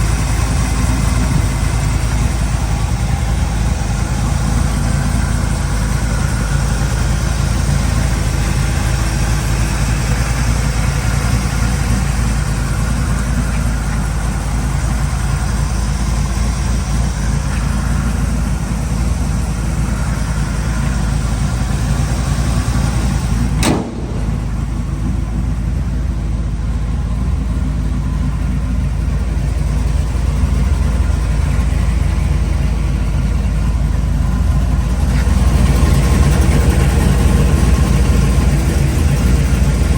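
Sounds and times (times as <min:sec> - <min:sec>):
car engine idling: 0:00.0 - 0:39.9
sharp click: 0:23.6 - 0:24.8.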